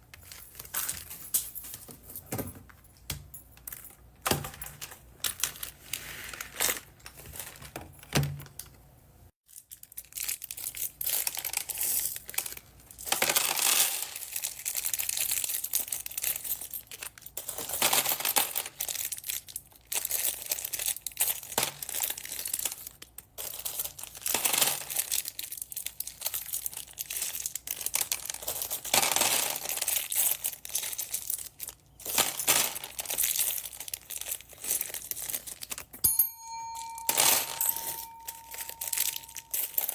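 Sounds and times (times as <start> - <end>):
plastic bags crinkling: 9.5 - 36.0, 37.4 - 39.9.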